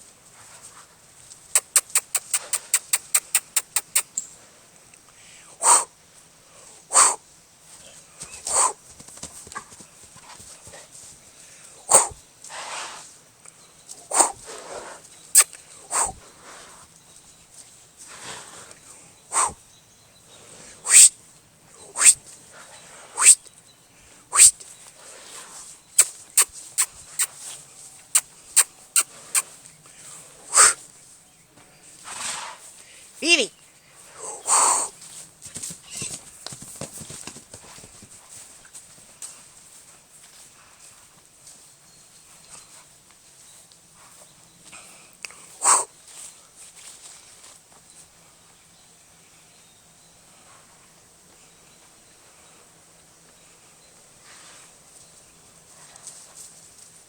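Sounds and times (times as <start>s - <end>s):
pet animal short sharp calls: 1.6s - 4.2s, 11.9s - 12.2s, 20.8s - 21.1s, 22.0s - 22.2s, 24.3s - 24.5s, 26.0s - 27.4s.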